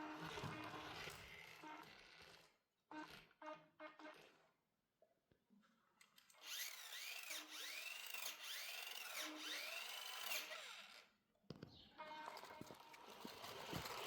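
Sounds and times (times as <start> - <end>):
toy car electric motor whining: 0.0 - 3.4, 6.4 - 11.1.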